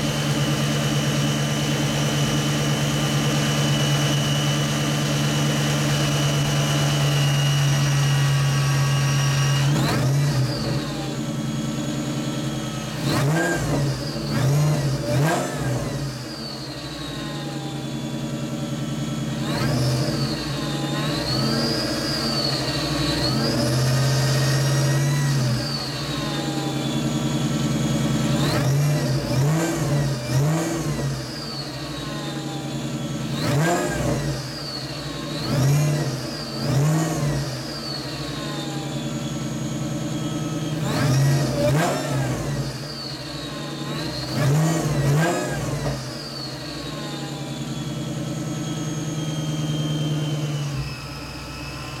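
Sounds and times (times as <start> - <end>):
car engine idling and revving: 0.0 - 52.0
supercharger whistle: 0.0 - 52.0.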